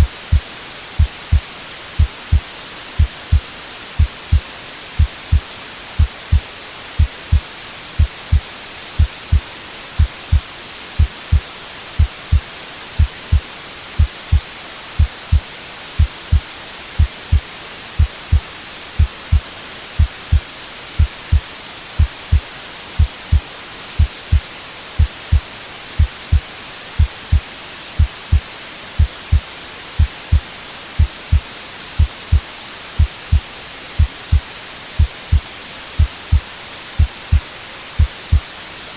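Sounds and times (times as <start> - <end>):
white-noise hiss: 0.0 - 38.9
heartbeat double thump: 10.0 - 10.4, 19.0 - 19.4, 20.0 - 20.4, 27.0 - 27.4, 37.0 - 37.4.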